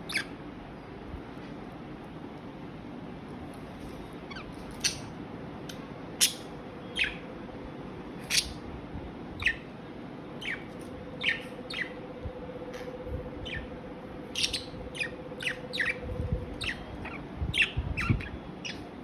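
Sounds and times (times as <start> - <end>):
budgerigars chirping: 0.1 - 0.3, 6.2 - 7.2, 8.2 - 8.6, 9.4 - 9.7, 10.4 - 12.0, 13.4 - 13.7, 14.3 - 18.9.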